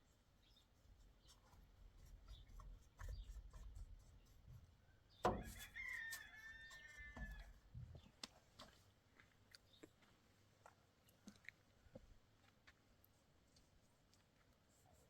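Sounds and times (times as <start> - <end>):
rooster crowing: 5.4 - 7.6.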